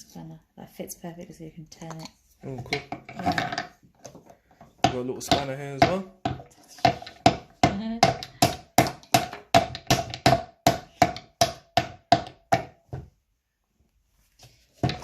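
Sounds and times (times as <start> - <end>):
wooden toy hammer knocking: 4.7 - 13.1.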